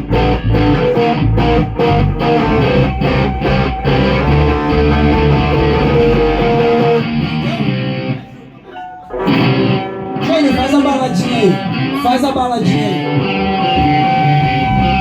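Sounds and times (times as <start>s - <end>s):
drums: 0.0s - 7.8s
bass guitar: 0.0s - 12.0s, 12.7s - 15.0s
electric guitar: 0.0s - 15.0s.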